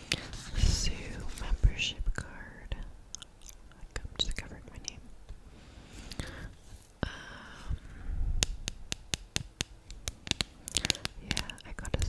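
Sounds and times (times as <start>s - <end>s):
sharp taps: 8.4s - 12.0s.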